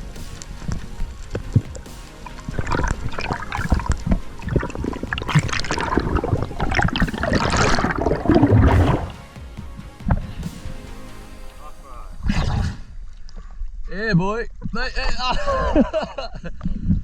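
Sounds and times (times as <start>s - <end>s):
water sloshing and gurgling: 0.0s - 9.3s, 12.2s - 13.9s
bubbling and splashing: 0.6s - 9.2s, 12.2s - 13.5s.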